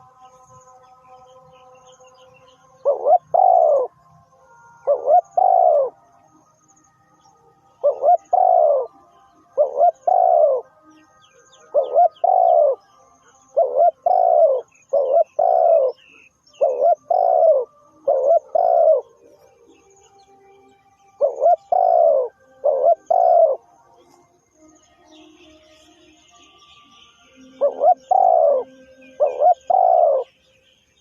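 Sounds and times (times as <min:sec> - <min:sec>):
dove cooing: 0:02.7 - 0:04.0, 0:04.8 - 0:06.0, 0:07.8 - 0:10.7, 0:11.5 - 0:12.8, 0:13.5 - 0:19.5, 0:21.2 - 0:24.2, 0:27.5 - 0:30.3.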